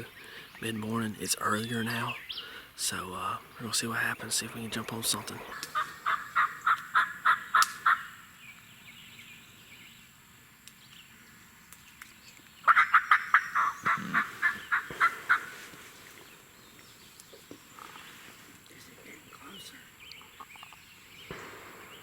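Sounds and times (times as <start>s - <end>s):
turkey yelping: 5.5s - 8.2s, 12.6s - 15.8s.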